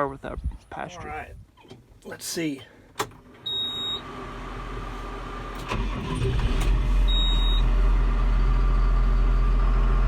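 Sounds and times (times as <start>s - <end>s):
tractor diesel engine starting: 3.1s - 10.0s.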